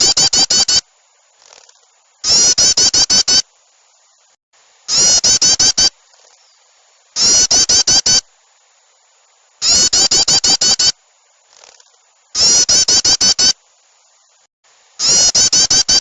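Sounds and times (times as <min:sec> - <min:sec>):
small birds chattering: 0:04.9 - 0:08.2, 0:09.6 - 0:13.6, 0:15.0 - 0:16.0
faint short bird calls: 0:15.0 - 0:16.0.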